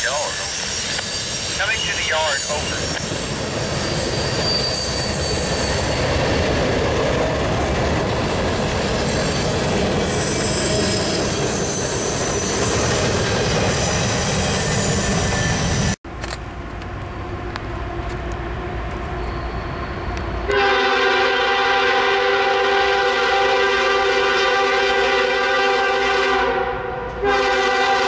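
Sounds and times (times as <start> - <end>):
train wheels rumbling on rail: 0.0 - 26.2
high-pitched wheel squeal: 0.2 - 1.8, 2.8 - 6.4, 8.5 - 15.9, 19.2 - 20.2.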